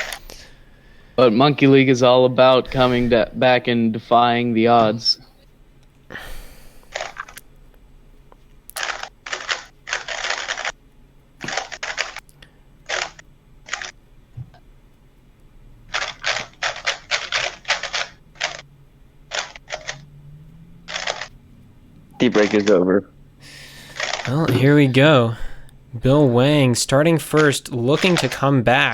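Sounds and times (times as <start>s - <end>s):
speedcube clicking clatter: 8.8s - 10.8s, 12.9s - 13.9s, 15.9s - 18.6s, 19.3s - 20.0s, 20.9s - 21.3s.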